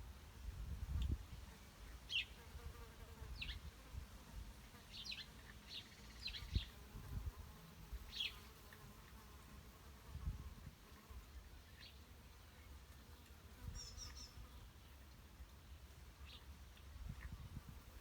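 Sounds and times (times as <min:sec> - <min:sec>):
low background noise: 0:00.0 - 0:18.0
songbirds high chirps: 0:01.9 - 0:02.4, 0:03.3 - 0:03.7, 0:04.8 - 0:06.9, 0:08.0 - 0:08.5, 0:11.6 - 0:12.8, 0:13.6 - 0:17.5.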